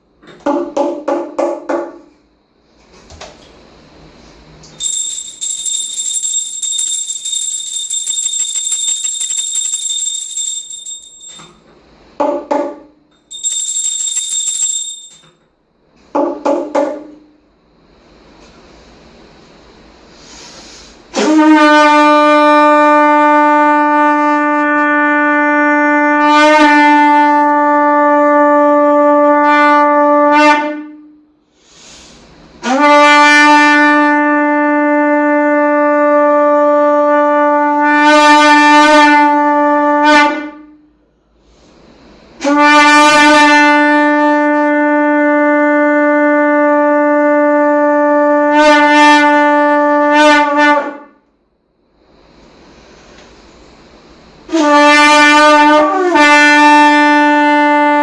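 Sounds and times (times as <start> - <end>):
conch shell blasts: 21.2 - 31.0, 42.4 - 51.1, 54.5 - 58.0.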